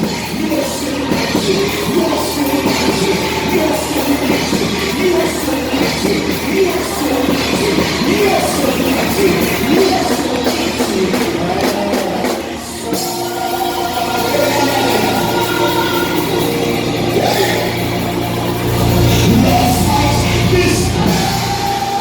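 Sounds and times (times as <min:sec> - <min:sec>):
rock music with singing: 0:00.0 - 0:22.0
deep bass: 0:16.0 - 0:22.0.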